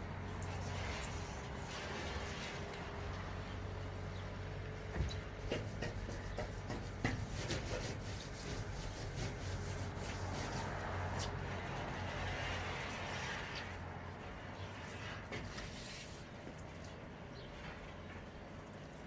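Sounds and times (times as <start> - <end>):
light knocks and taps: 4.9 - 7.6
brush scrubbing metal: 5.3 - 13.8, 14.9 - 16.6.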